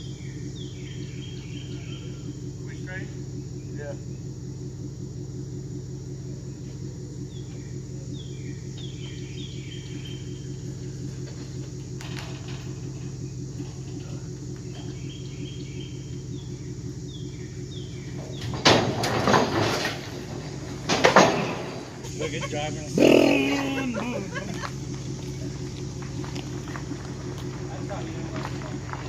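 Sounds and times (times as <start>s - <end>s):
birds chirping: 0.0s - 29.0s
vehicle engine idling: 0.0s - 29.0s
rustling clattering burst: 11.1s - 14.8s, 18.1s - 22.2s.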